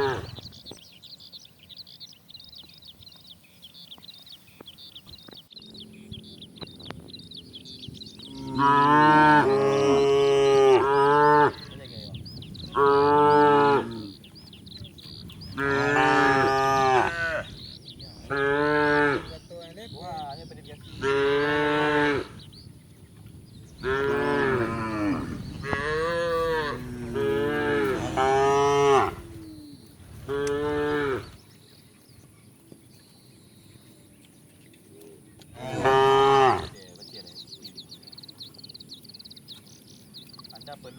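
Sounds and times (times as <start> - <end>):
cattle mooing: 0.0 - 0.4, 8.3 - 11.8, 12.7 - 14.2, 15.5 - 17.5, 20.9 - 22.4, 23.8 - 29.6, 30.2 - 31.4, 35.5 - 36.8.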